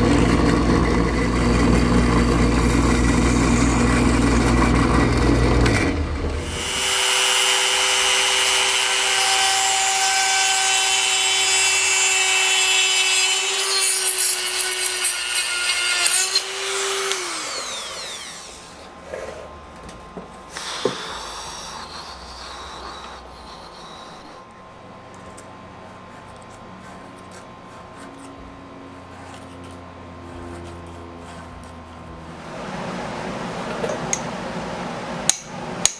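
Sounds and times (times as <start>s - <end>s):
electric power tool motor: 0.0s - 18.9s.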